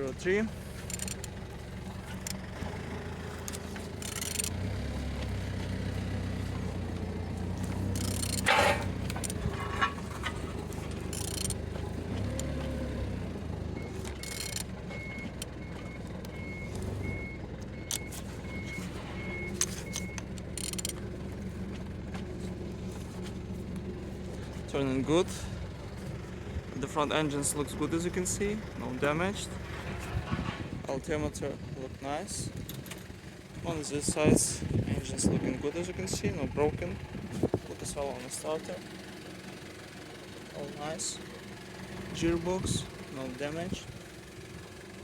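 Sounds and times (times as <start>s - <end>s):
vehicle engine rumbling: 0.0s - 45.0s
reversing beeper beeps: 13.8s - 20.2s.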